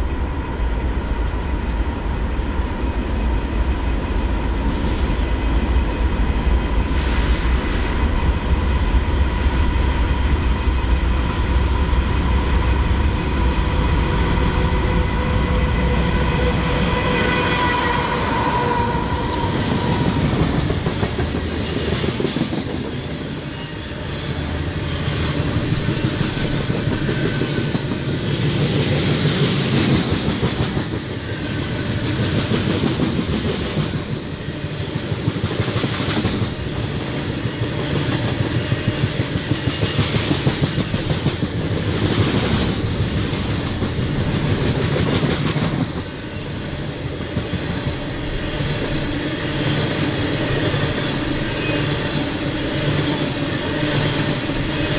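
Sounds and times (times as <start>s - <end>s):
diesel train engine rumble: 0.0s - 54.9s
train cars rolling on rails: 0.0s - 54.9s.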